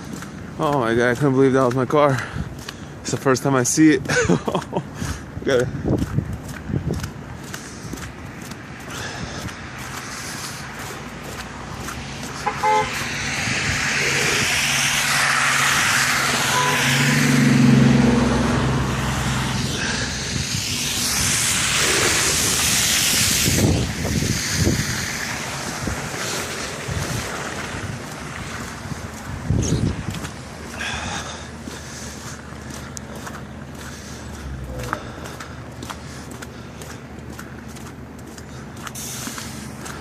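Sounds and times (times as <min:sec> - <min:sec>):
low engine hum: 0:04.3 - 0:40.0
tyres hissing on road: 0:07.2 - 0:40.0
car horn toot: 0:12.4 - 0:13.0, 0:16.4 - 0:17.1.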